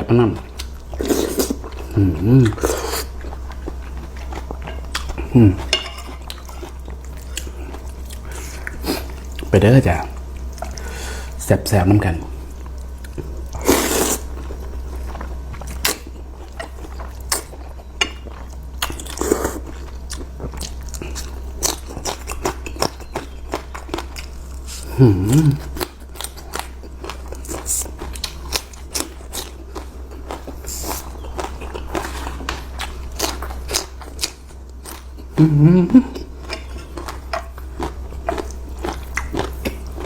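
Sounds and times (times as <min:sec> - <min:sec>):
person humming: 0:01.9 - 0:02.7, 0:05.2 - 0:05.7, 0:24.8 - 0:25.7, 0:35.4 - 0:36.2
crunchy chewing: 0:12.3 - 0:40.0.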